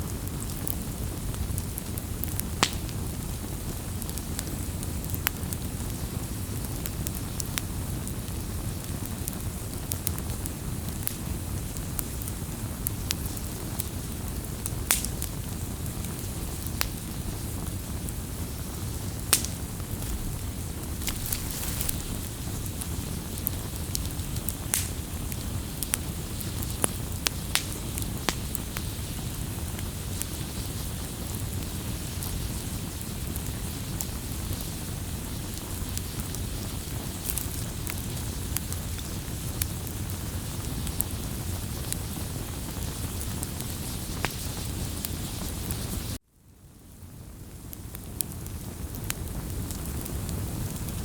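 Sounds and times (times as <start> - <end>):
low fire roar: 0.0 - 46.2
fire crackling and popping: 0.0 - 51.0.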